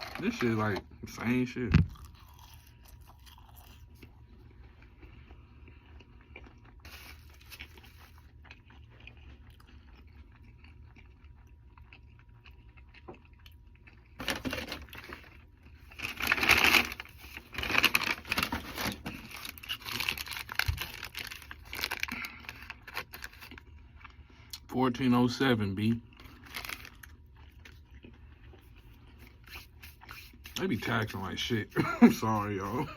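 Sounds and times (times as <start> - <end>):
paper packaging crinkling: 0.0 - 0.8, 14.2 - 23.6, 26.2 - 27.1
quiet chewing: 1.9 - 14.2, 26.1 - 30.6.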